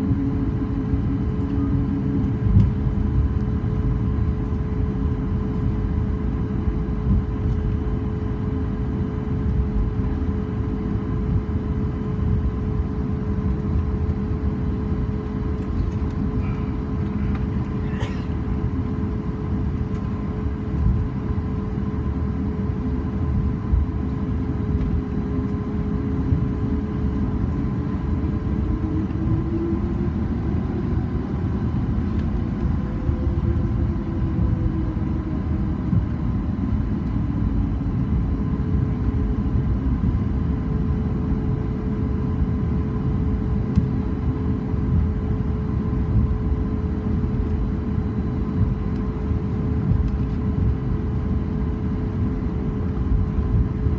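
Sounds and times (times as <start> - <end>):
airplane cabin rumble: 0.0 - 53.9
jet engines humming: 0.0 - 53.9.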